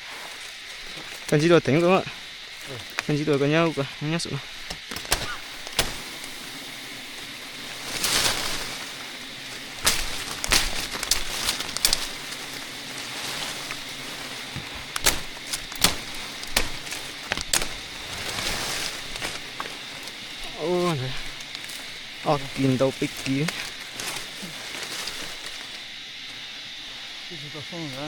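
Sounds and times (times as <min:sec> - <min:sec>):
outdoor hiss: 0:00.0 - 0:28.0
rustling: 0:00.0 - 0:28.0
sharp knocks and clicks: 0:14.5 - 0:17.9.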